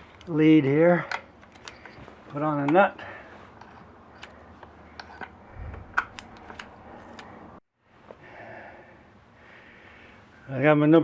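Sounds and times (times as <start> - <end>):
small metallic clicks: 1.0 - 2.8.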